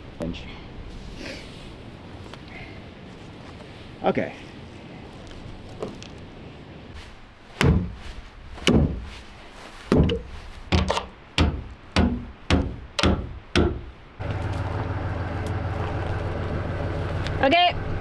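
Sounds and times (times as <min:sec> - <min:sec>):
heavy wooden knocks: 0:07.6 - 0:08.0, 0:08.6 - 0:09.1, 0:09.9 - 0:13.9
diesel truck engine idling: 0:14.2 - 0:18.0.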